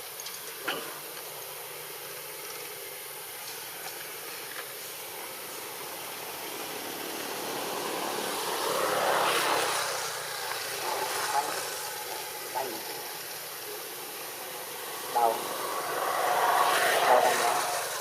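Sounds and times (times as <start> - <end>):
outdoor hiss: 0.0 - 18.0
vehicle passing by: 4.0 - 18.0.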